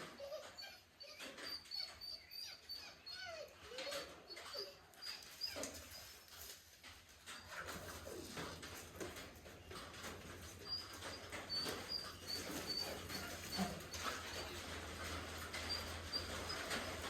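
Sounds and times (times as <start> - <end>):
dog whining: 0.0 - 6.3, 10.4 - 17.0.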